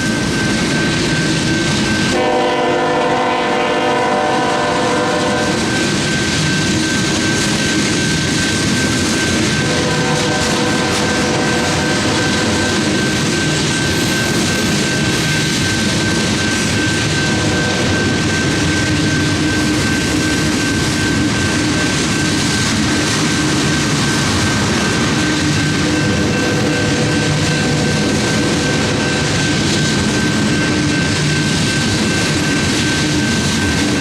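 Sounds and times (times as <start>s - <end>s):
crossing warning bell: 0.0s - 34.0s
train wheels clattering: 0.0s - 34.0s
locomotive horn chord: 2.1s - 5.6s, 9.6s - 12.6s.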